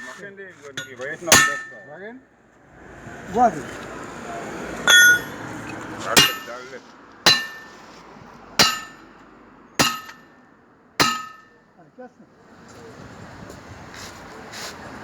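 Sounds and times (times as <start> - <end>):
hammer clanging on steel rim: 0.0 - 1.9, 4.9 - 5.5, 6.1 - 6.7, 7.3 - 7.8, 8.6 - 9.0, 9.8 - 10.3, 11.0 - 11.6.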